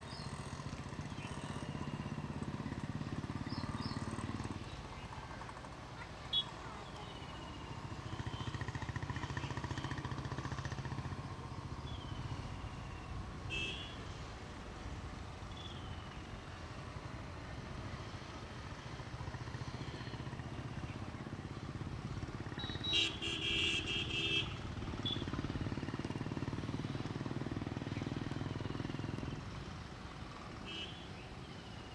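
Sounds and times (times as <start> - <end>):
road traffic: 0.0 - 31.9
vehicle horn: 13.4 - 14.2, 22.8 - 25.4, 30.6 - 31.1.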